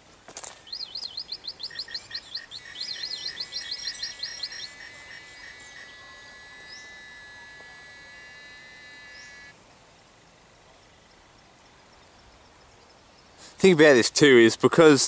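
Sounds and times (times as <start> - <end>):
synthetic bird chirps: 1.6 - 9.5
high electronic drone: 2.6 - 9.5.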